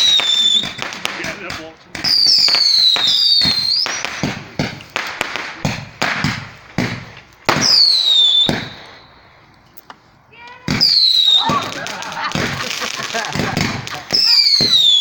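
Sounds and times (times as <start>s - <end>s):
falling firework whistles: 0.0s - 1.0s, 2.1s - 4.4s, 6.2s - 9.3s, 10.7s - 15.0s
fireworks bangs and cracks: 0.0s - 9.2s, 10.4s - 15.0s.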